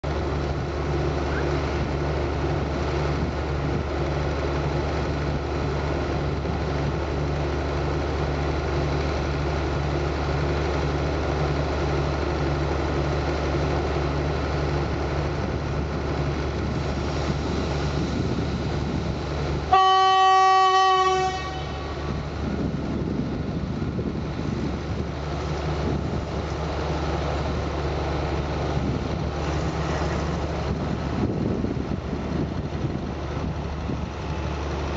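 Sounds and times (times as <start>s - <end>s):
diesel train engine droning: 0.0s - 34.9s
train horn blast: 19.7s - 22.3s.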